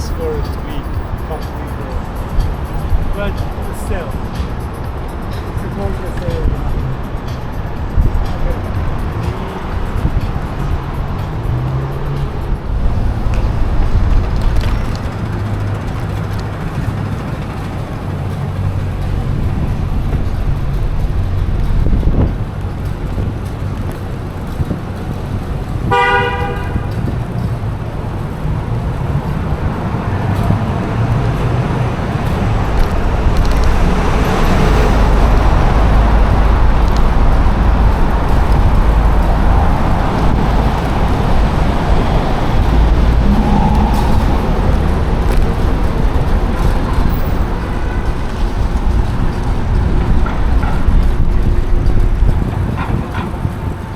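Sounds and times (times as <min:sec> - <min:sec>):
car horn toot: 0:00.0 - 0:01.8, 0:25.9 - 0:27.0
street traffic rumble: 0:00.0 - 0:53.9.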